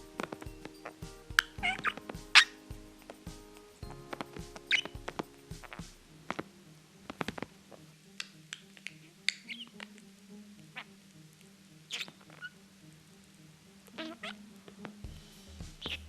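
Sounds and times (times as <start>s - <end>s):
budgerigar squeaky chirps and clicks: 0.3s - 3.6s, 4.6s - 5.0s, 8.2s - 10.1s, 11.9s - 12.6s, 14.0s - 14.9s.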